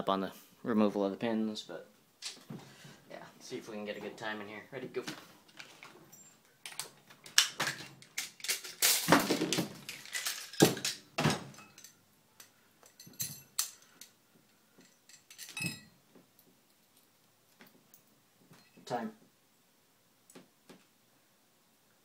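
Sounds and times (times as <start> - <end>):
metal clicks and rattles: 5.5 - 14.1.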